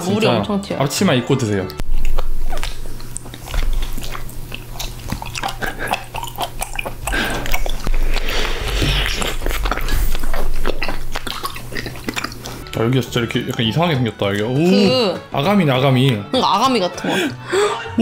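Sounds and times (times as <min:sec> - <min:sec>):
close chewing: 0:01.7 - 0:15.3
mouth clicks and smacks: 0:01.8 - 0:12.8.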